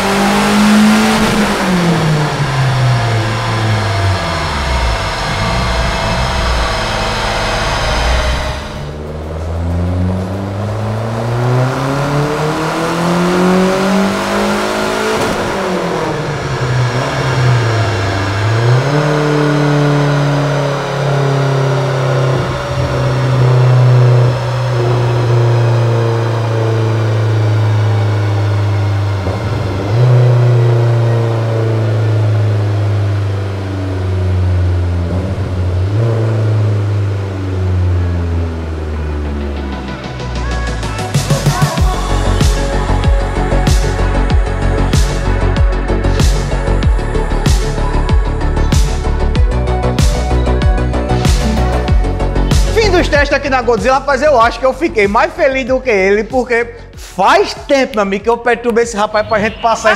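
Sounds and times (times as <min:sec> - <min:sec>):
car engine revving on dynamometer: 0:00.0 - 0:40.2.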